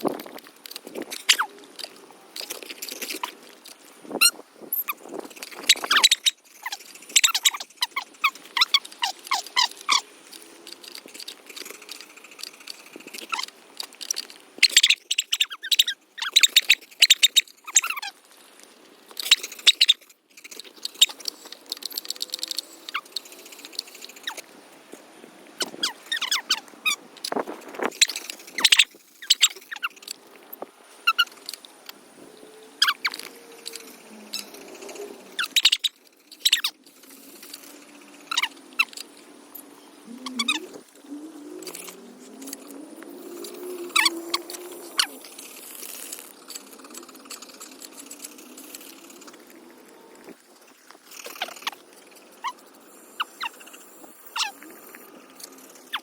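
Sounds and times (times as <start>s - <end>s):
high squeaks and chirps: 1.1s - 1.6s, 4.2s - 10.1s, 11.2s - 13.5s, 14.6s - 18.2s, 19.2s - 24.4s, 25.6s - 27.0s, 27.9s - 30.1s, 31.0s - 31.6s, 32.8s - 40.8s, 41.5s - 49.4s, 51.1s - 56.0s.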